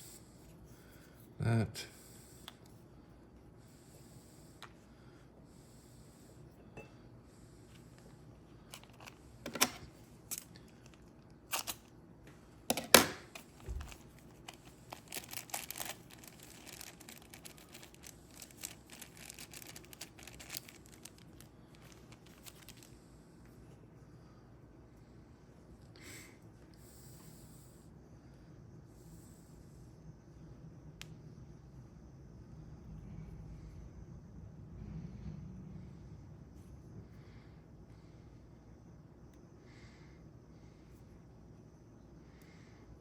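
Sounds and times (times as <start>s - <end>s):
plastic bag crinkling: 13.4s - 22.9s.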